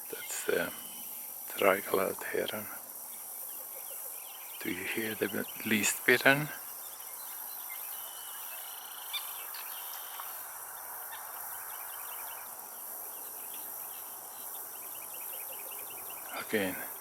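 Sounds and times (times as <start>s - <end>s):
repeated chip calls: 0.0s - 6.8s, 15.1s - 17.0s
high insect buzz: 0.0s - 17.0s.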